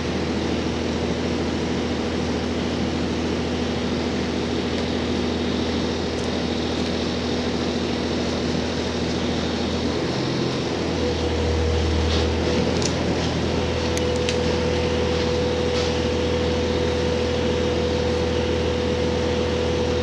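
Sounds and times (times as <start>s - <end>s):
diesel engine drone: 0.0s - 20.0s
rail noise: 5.2s - 20.0s.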